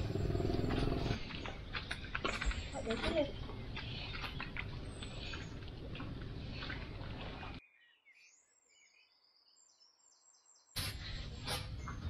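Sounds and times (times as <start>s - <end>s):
steady outdoor noise: 0.0s - 7.6s.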